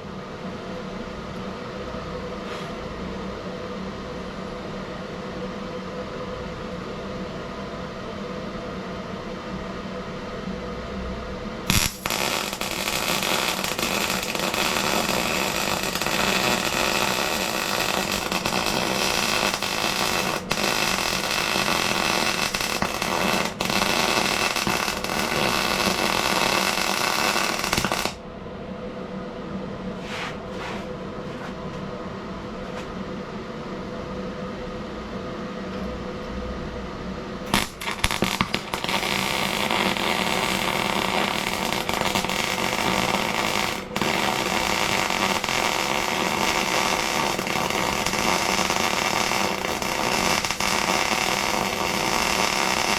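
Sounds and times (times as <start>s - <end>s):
steady hum: 0.0s - 52.9s
welding arc crackling: 11.7s - 28.2s, 37.5s - 52.9s.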